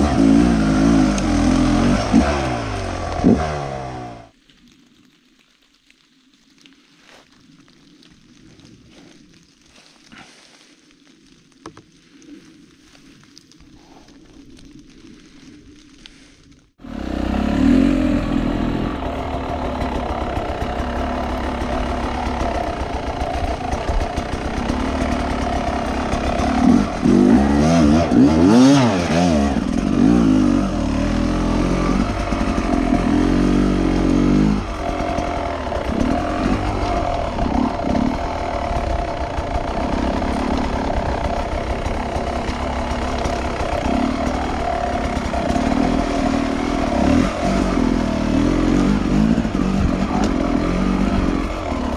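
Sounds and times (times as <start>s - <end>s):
motorcycle engine revving: 0.0s - 4.3s, 16.8s - 51.9s.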